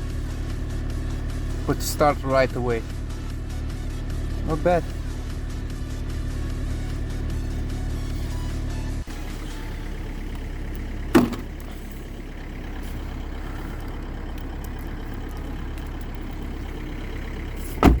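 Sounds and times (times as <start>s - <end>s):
diesel engine idling: 0.0s - 18.0s
short loud thumps: 11.1s - 11.8s, 17.7s - 18.0s.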